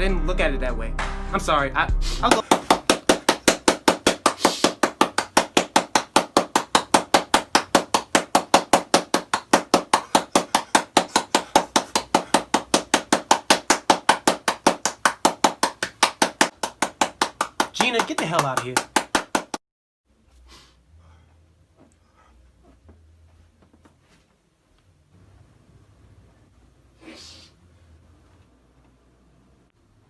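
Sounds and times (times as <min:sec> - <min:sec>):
rapid hard knocks: 0:02.3 - 0:19.6.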